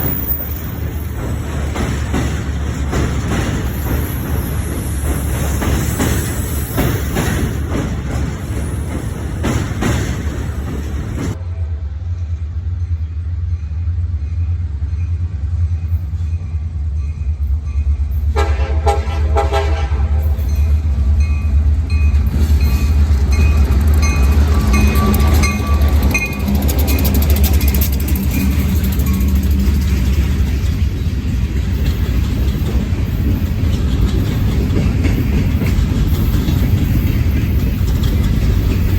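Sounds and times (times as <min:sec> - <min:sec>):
train rumbling past: 0:00.0 - 0:38.9
train horn: 0:18.3 - 0:20.5, 0:24.5 - 0:26.4.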